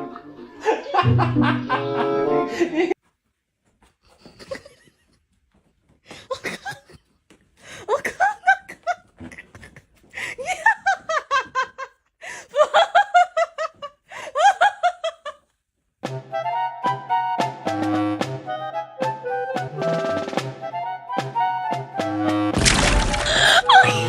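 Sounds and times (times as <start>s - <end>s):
person laughing: 0.6s - 3.0s, 4.3s - 5.1s, 6.1s - 7.0s, 7.8s - 15.4s, 23.0s - 24.0s.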